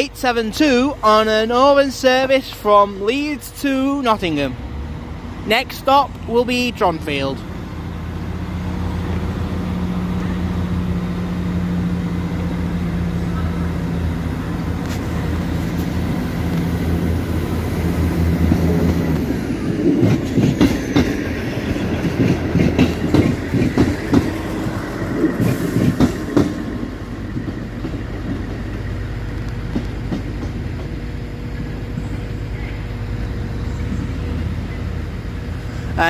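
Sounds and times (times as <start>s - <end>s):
diesel train engine running: 0.0s - 36.0s
train wheels clattering over joints: 18.4s - 31.2s.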